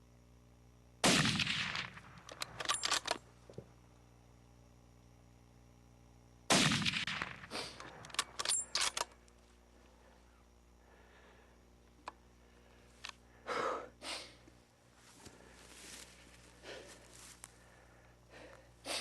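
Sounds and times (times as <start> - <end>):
rifle shots with rolling echo: 1.0 - 2.9, 6.5 - 8.0
sharp clicks: 2.1 - 3.2.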